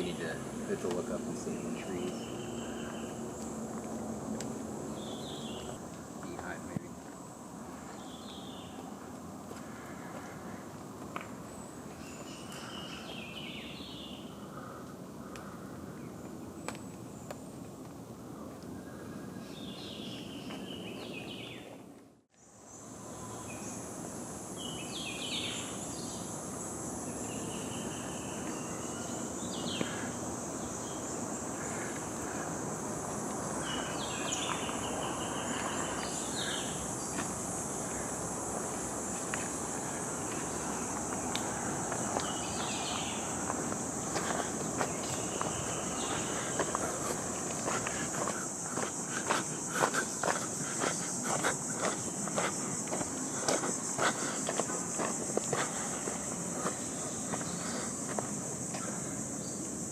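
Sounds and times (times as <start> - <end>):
birds calling: 0.0 - 6.8, 24.6 - 59.6
steady background hiss: 0.0 - 59.9
high-pitched insect drone: 22.4 - 59.9.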